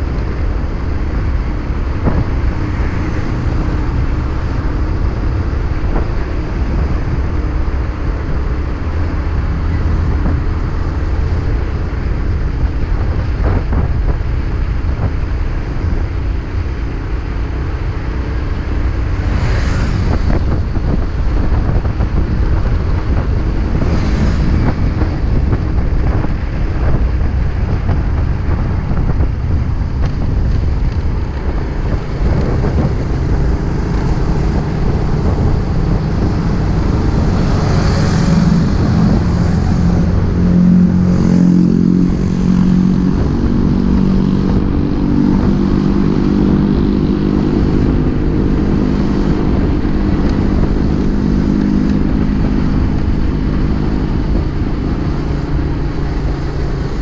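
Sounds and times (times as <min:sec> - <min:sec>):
motorcycle engine drone: 0:00.0 - 0:57.0
wind noise on microphone: 0:00.0 - 0:57.0
brief swish: 0:19.2 - 0:20.4.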